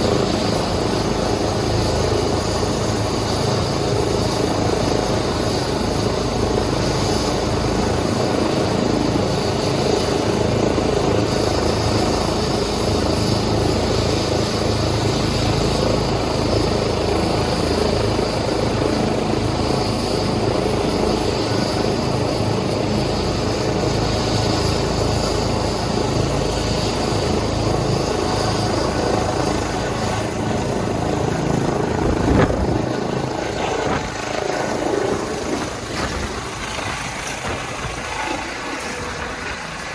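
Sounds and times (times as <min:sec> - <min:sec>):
helicopter rotor whir and rumble: 0:00.0 - 0:39.9.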